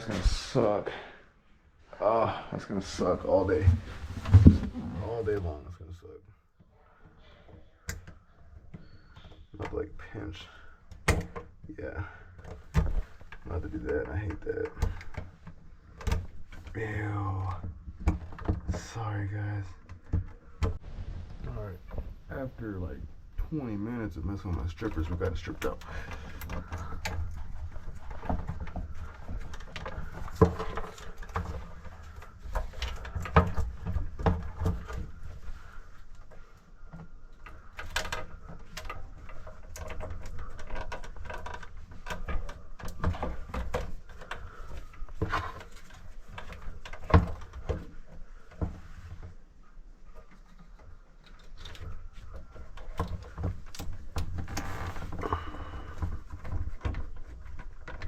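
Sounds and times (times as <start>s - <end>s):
knocks clicks and scrapes: 2.8s - 5.6s, 12.3s - 58.0s
low rumble: 20.8s - 23.2s.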